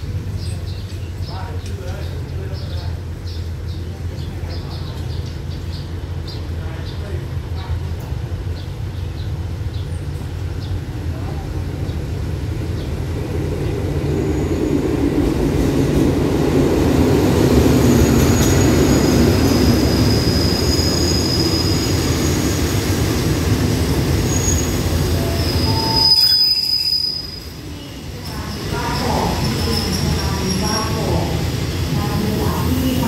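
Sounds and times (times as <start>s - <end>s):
train carriages rumbling past: 0.0s - 33.0s
wheel squeal: 24.3s - 27.5s.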